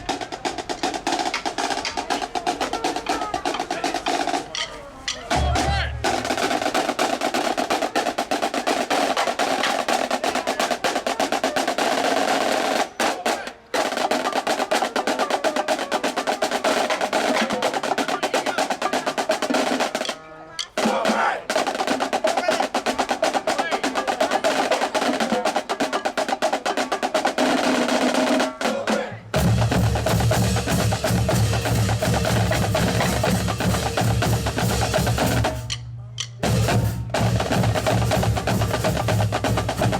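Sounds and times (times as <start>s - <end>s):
snare drum cadence: 0.0s - 39.9s
bass drums: 29.4s - 39.9s.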